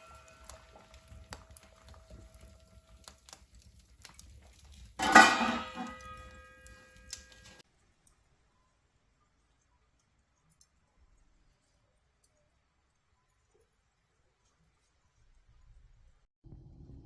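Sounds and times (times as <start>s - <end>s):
metal cookware clattering: 0.0s - 3.3s, 4.0s - 7.6s
light metal clinks: 5.0s - 7.6s.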